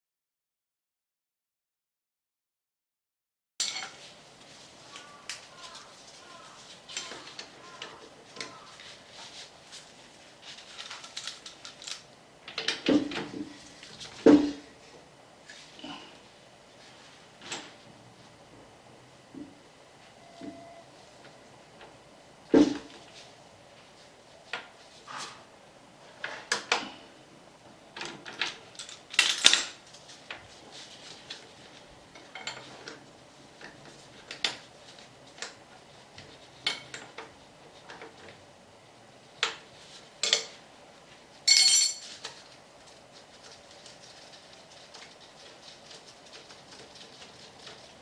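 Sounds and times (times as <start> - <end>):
metal tools clinking: 3.6 - 4.0, 10.6 - 12.1, 41.5 - 42.2.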